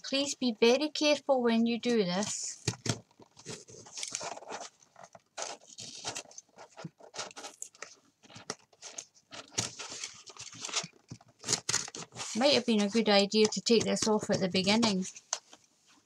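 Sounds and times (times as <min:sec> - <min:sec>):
card and paper crunching: 0:02.4 - 0:15.2.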